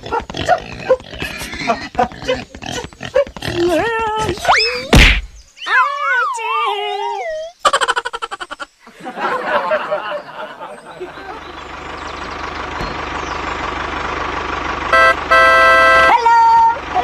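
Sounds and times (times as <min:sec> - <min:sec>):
vehicle engine running: 0:11.1 - 0:17.0
horn honking: 0:14.8 - 0:16.8.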